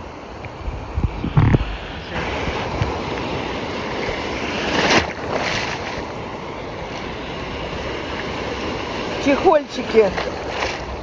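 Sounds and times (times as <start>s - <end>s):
waves breaking: 0.0s - 11.0s
wind buffeting microphone: 0.0s - 11.0s.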